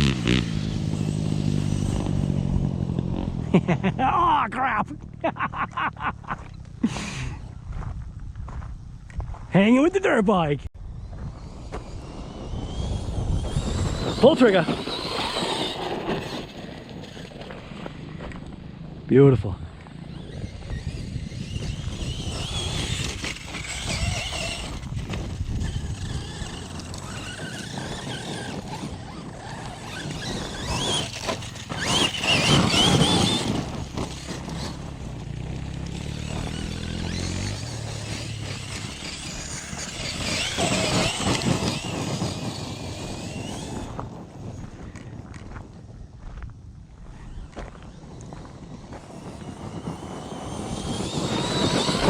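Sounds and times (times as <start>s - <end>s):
rc truck motor whining: 0.0s - 3.3s, 10.8s - 19.0s, 19.7s - 45.7s, 47.0s - 52.0s
tyres crunching over gravel: 20.4s - 52.0s.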